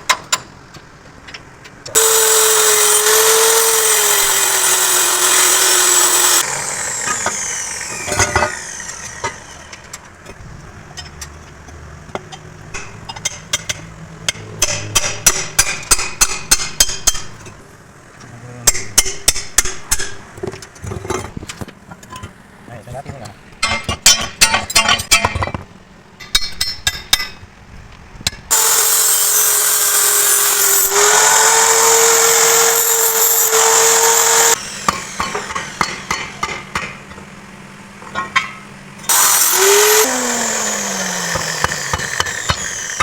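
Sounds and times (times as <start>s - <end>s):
angle grinder whining: 1.9s - 9.9s, 28.5s - 36.4s, 39.1s - 43.0s.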